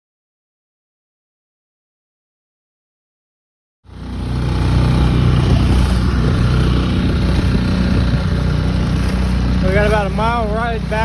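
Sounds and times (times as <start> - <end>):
outboard motor running: 3.9 - 11.0.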